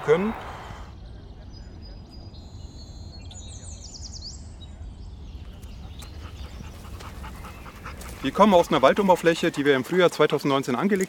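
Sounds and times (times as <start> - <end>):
small bird chirping: 1.0 - 9.4.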